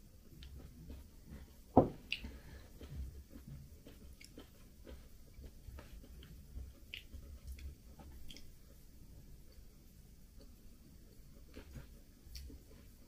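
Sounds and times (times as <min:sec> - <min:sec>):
chewing soft muffin: 0:00.0 - 0:13.0
ceramic mug set down on table: 0:01.8 - 0:02.0.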